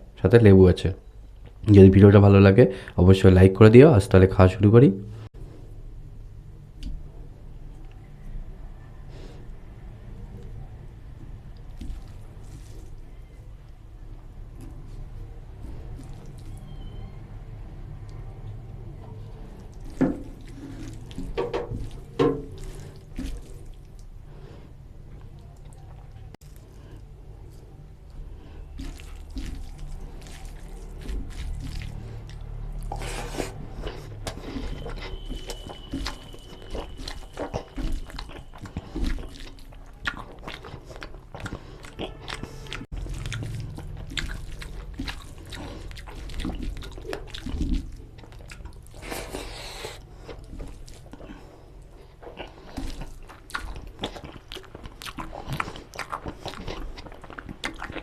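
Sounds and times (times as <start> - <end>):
chewing and biting: 11.2 - 13.4, 14.6 - 17.0, 18.0 - 24.2, 25.1 - 58.0.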